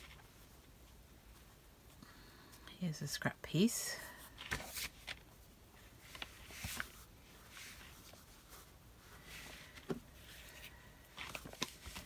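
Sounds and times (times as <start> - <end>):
paper rustling: 0.0 - 1.6, 4.2 - 12.0.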